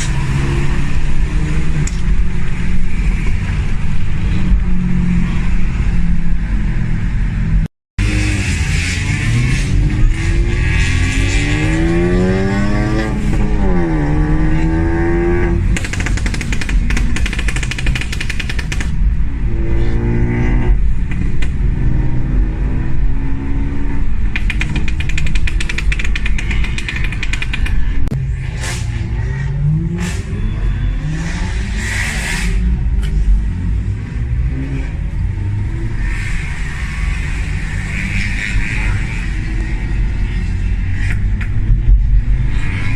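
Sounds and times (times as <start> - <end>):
car engine revving: 8.0 - 18.2
exhaust crackles and pops: 24.3 - 28.2.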